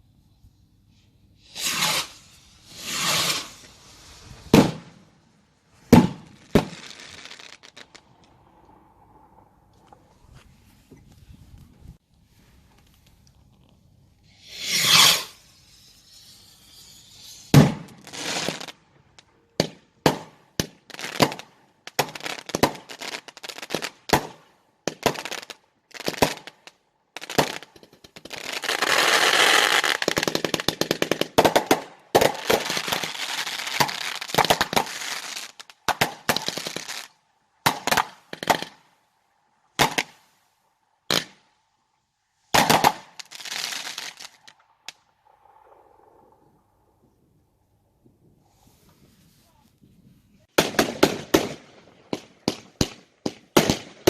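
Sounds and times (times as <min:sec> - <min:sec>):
fireworks bangs: 0:01.5 - 0:05.2, 0:05.8 - 0:08.2, 0:14.4 - 0:18.8, 0:39.8 - 0:40.2, 0:42.5 - 0:46.4, 0:50.5 - 0:54.0.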